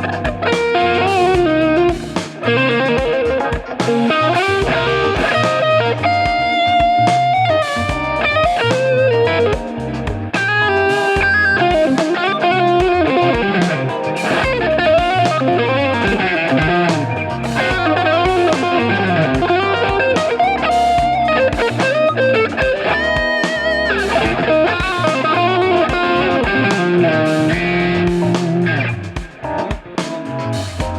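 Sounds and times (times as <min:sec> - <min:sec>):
electric guitar lead with string bends: 0:00.0 - 0:30.9.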